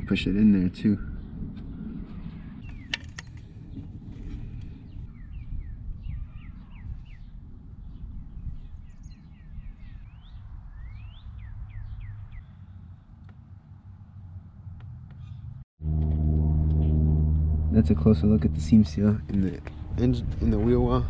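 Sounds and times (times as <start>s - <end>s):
bird chirping: 0.6s - 3.9s, 4.7s - 13.1s
low outdoor rumble: 12.6s - 21.0s.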